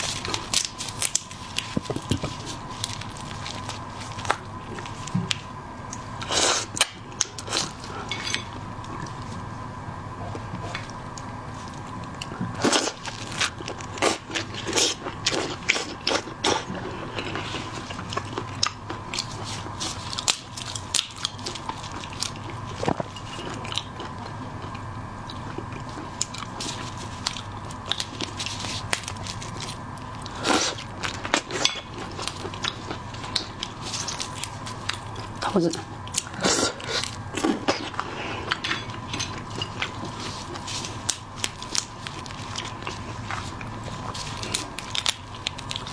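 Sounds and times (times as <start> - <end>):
crunching and cracking seafood shells: 0.0 - 45.9.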